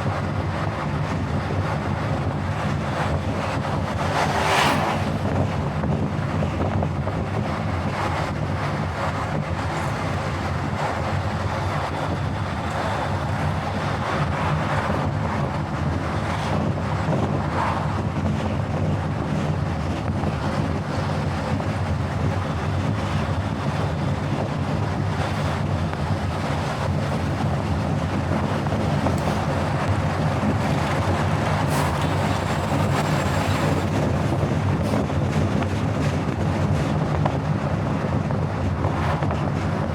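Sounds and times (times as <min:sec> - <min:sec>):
road and wind noise: 0:00.0 - 0:39.9.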